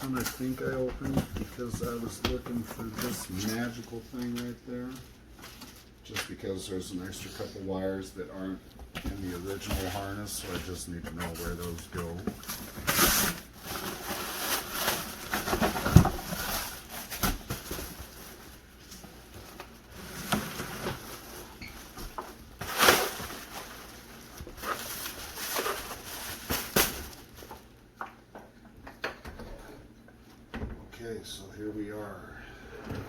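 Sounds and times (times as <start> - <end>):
cardboard and plastic rustling: 0.0 - 7.2, 8.4 - 28.5.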